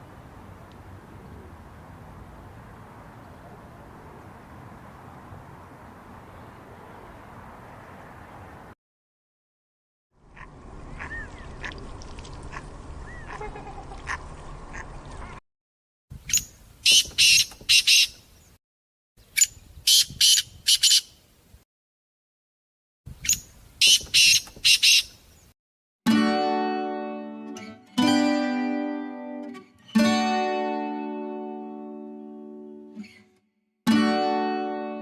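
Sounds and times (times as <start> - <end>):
duck quacking: 10.3 - 11.8, 12.4 - 15.4
acoustic guitar music: 26.1 - 35.0.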